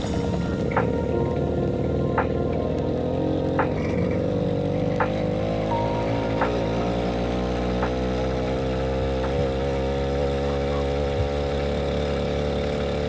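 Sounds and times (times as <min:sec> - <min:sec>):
motorcycle engine running steadily: 0:00.0 - 0:13.0.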